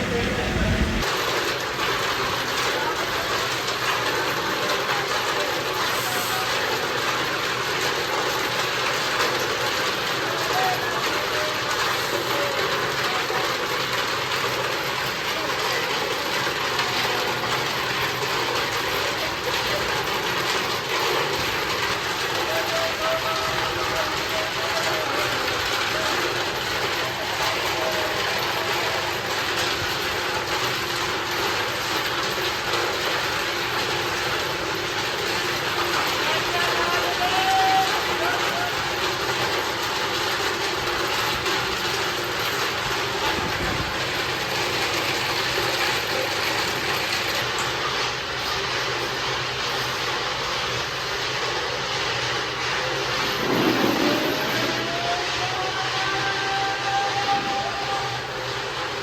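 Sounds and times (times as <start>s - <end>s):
motor whine rising in pitch: 0.0s - 1.0s
constant hum: 0.0s - 1.2s
workshop machinery running: 0.0s - 59.0s.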